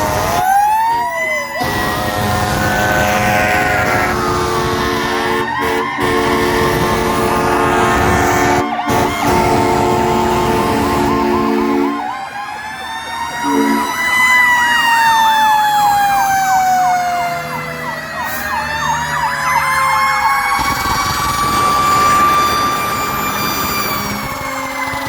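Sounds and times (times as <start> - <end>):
siren rapid yelp: 0.0 - 25.0
siren wailing: 0.0 - 25.0
air horn blasts: 1.6 - 12.2, 13.4 - 14.0.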